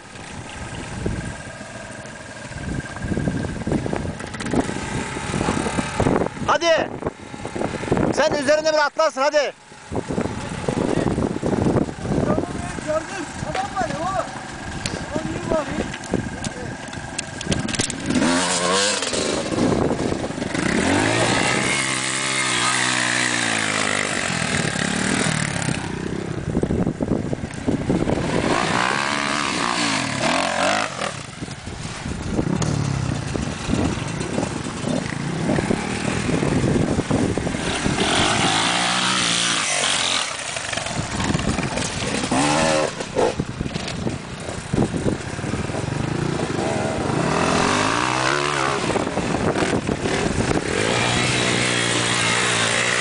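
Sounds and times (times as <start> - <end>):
dirt bike engine revving: 1.0 - 53.0.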